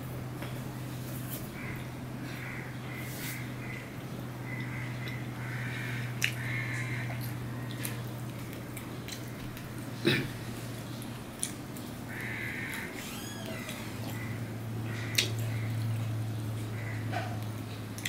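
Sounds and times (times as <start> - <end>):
steady low hum: 0.0 - 18.0
person chewing: 4.5 - 11.9.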